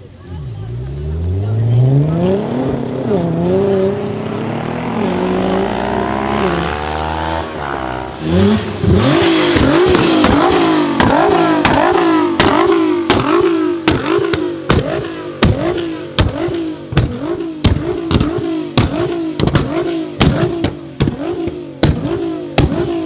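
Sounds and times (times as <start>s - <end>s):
car engine accelerating: 0.4s - 23.0s
engine revving in quick blips: 8.2s - 23.0s
exhaust pops: 8.4s - 23.0s.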